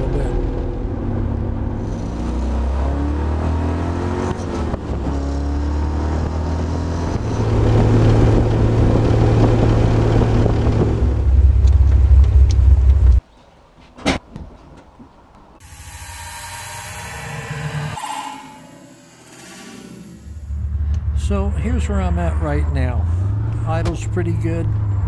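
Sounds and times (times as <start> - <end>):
car engine running: 7.1 - 13.2.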